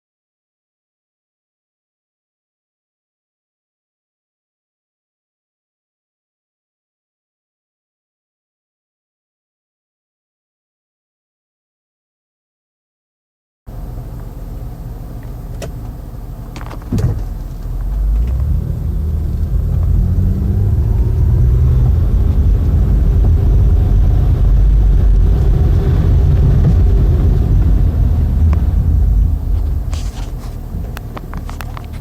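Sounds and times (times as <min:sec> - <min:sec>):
low rumble: 0:13.7 - 0:32.0.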